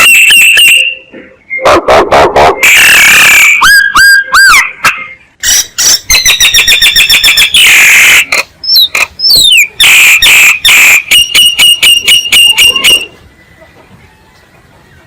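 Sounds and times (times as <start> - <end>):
myna whistled notes: 0.0 - 1.8, 2.6 - 13.2.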